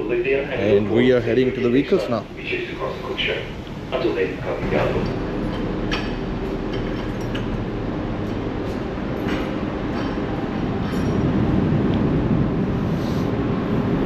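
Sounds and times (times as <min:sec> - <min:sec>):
ferry engines rumbling: 0:00.0 - 0:14.0
light metal clanks: 0:08.7 - 0:11.4.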